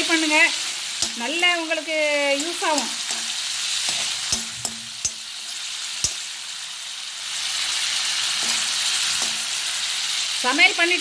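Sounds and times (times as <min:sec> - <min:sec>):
prawns sizzling in hot oil: 0:00.0 - 0:11.0
spatula knocking against pan: 0:03.9 - 0:05.3.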